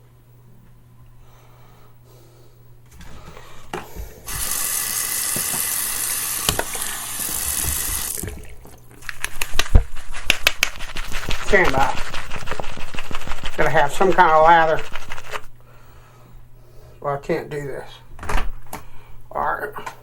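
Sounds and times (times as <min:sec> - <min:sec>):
tap running into a sink: 0:04.3 - 0:08.8.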